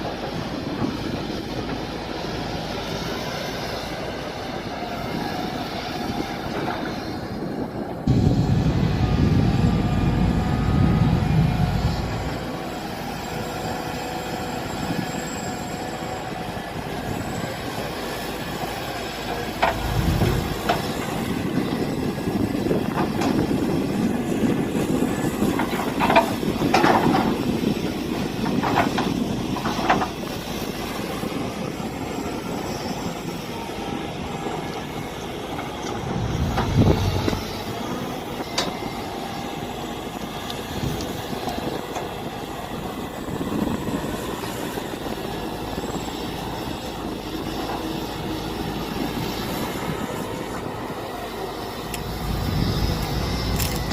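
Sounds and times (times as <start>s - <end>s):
excavator engine running: 0.0s - 53.9s
low thumps: 19.6s - 21.0s.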